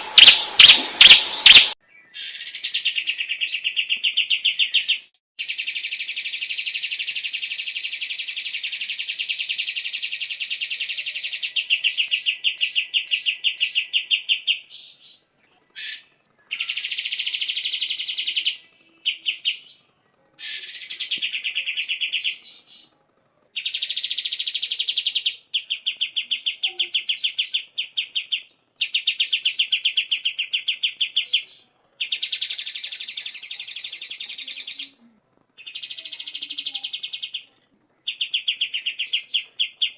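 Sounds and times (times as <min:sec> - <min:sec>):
bird singing buzzy rapid notes: 0:00.0 - 0:02.6.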